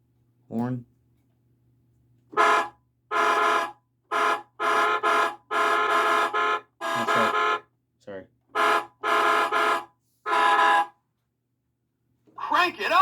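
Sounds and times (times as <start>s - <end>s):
electronic toy horn honking: 2.4s - 7.6s, 8.6s - 10.9s.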